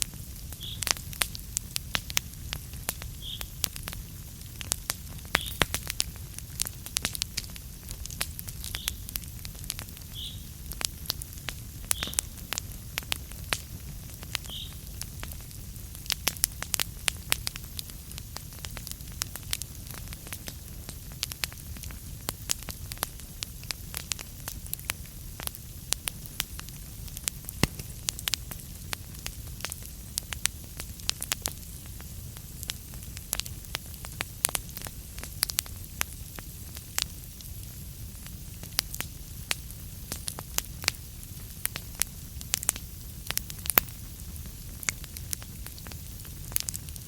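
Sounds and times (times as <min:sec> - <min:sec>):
burning wood crackling: 0:00.0 - 0:47.0
low rumble of fire: 0:00.0 - 0:47.0.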